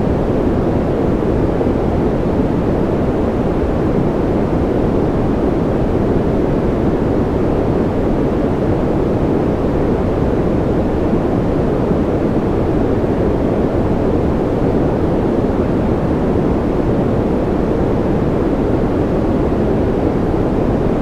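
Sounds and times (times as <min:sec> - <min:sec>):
deep continuous noise: 0:00.0 - 0:21.0.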